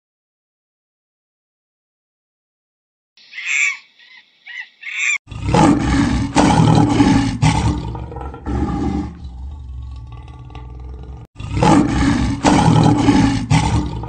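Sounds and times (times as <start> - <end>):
lion roaring: 5.3 - 14.0.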